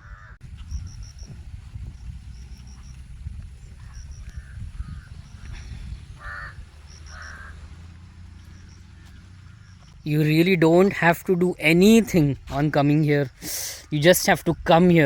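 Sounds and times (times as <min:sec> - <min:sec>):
crows cawing: 0:00.0 - 0:00.4, 0:03.9 - 0:10.0
bird chirping: 0:00.0 - 0:15.0
steady low rumble: 0:00.0 - 0:15.0.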